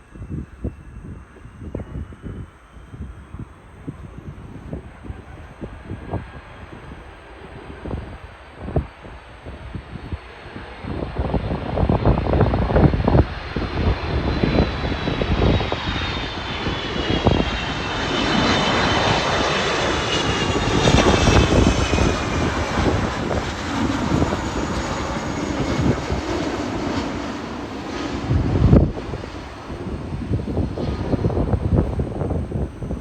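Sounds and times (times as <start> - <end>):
jet airliner passing: 0.0 - 33.0
jet engine whine: 0.0 - 33.0.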